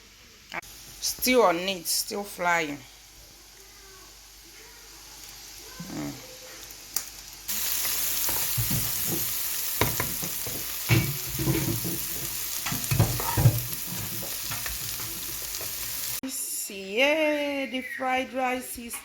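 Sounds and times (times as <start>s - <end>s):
rice sizzling in a frying pan: 0.1s - 16.2s
utensil scraping and knocking pan: 8.3s - 15.9s.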